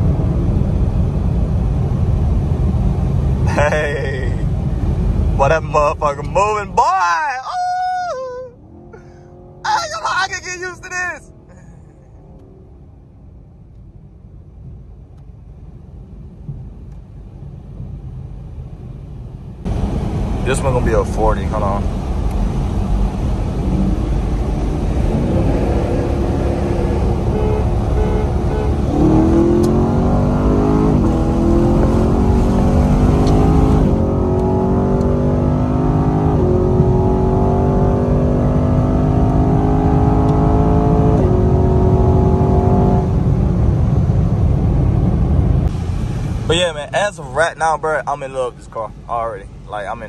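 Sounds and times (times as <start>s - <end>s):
car engine accelerating with upshifts: 8.5s - 9.9s, 19.6s - 48.0s.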